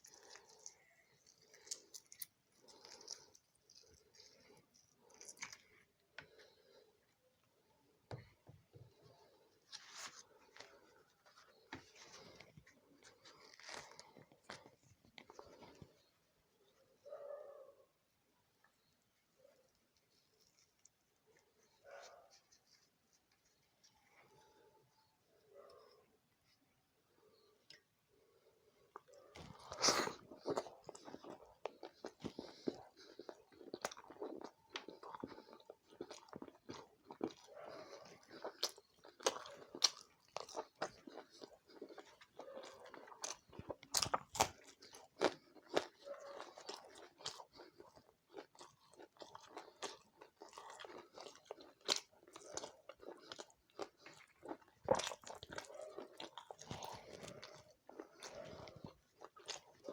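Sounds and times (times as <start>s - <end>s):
wet chewing mouth sounds: 0.0s - 6.8s, 8.2s - 16.1s, 28.7s - 59.9s
crunchy bites: 29.0s - 59.9s.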